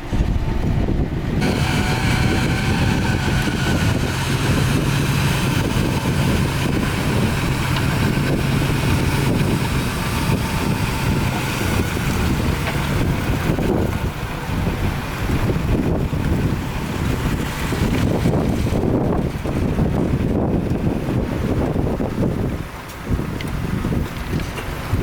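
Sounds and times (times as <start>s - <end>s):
diesel earthmoving machinery: 0.0s - 25.0s
wind buffeting microphone: 0.0s - 25.0s
high machine whine: 1.4s - 18.4s.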